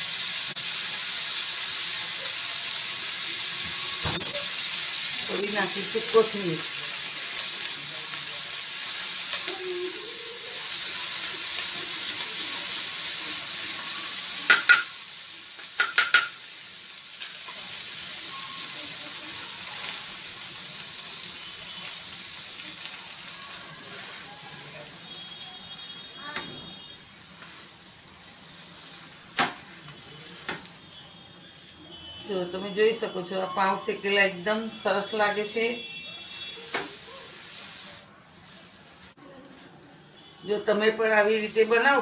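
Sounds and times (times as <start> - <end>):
food sizzling on a flat pan: 0.0 - 42.0
spatula clicking against pan: 14.5 - 14.9, 15.6 - 16.4.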